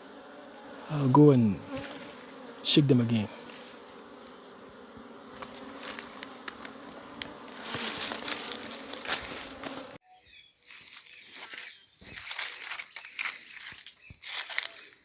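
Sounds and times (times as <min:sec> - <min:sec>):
bee swarm buzzing: 0:00.0 - 0:10.0
faint rustling: 0:05.3 - 0:10.0.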